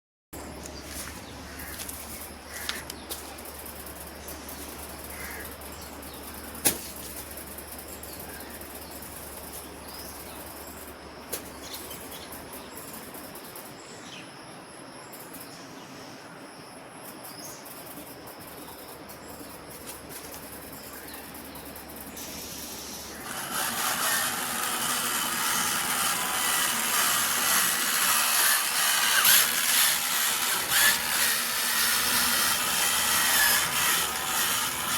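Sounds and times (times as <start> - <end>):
small electric motor whirring: 21.8 - 34.9.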